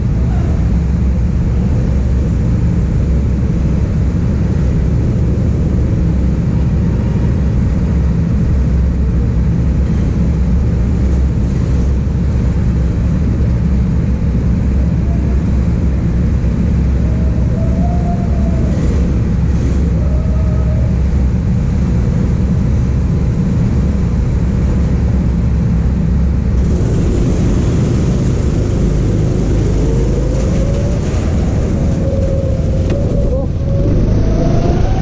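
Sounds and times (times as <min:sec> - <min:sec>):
go-kart engine running: 0:26.2 - 0:35.0.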